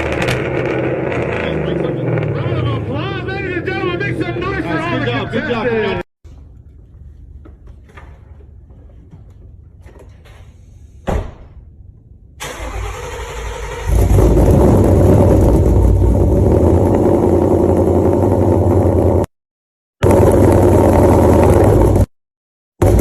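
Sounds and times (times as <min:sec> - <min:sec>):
car engine revving: 0:00.0 - 0:05.1, 0:12.4 - 0:19.3, 0:20.0 - 0:22.1.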